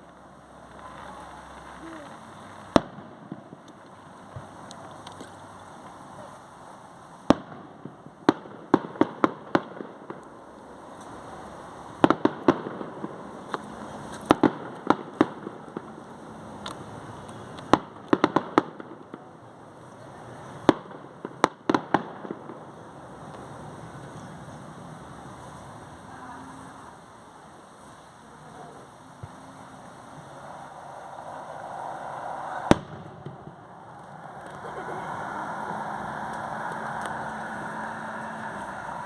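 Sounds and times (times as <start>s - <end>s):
fireworks bangs: 0.0s - 27.0s, 27.8s - 39.0s
steady background noise: 0.0s - 39.0s.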